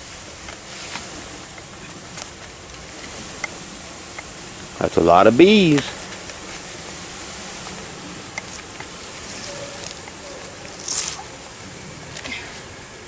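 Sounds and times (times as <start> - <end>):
bees buzzing: 0.0 - 13.0
outdoor noise: 0.0 - 13.0
scratchy rustle: 5.7 - 12.8.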